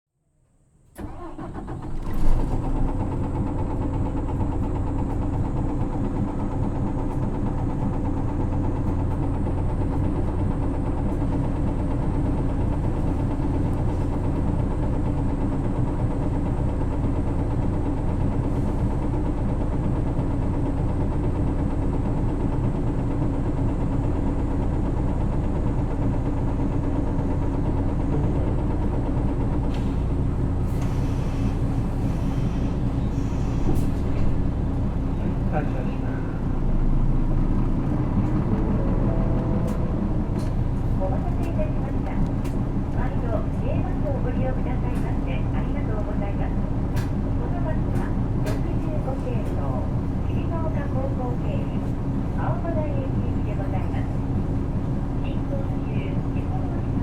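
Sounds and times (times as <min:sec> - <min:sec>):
bus diesel engine idling: 0:00.6 - 0:57.0.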